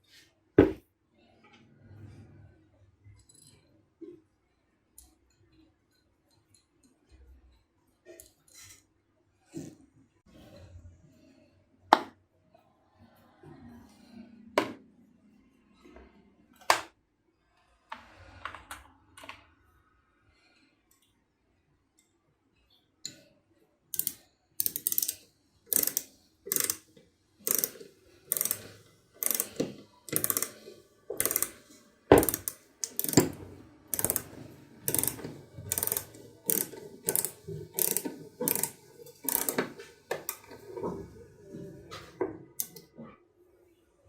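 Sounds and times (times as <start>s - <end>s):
ratchet clicking: 23.9s - 40.6s.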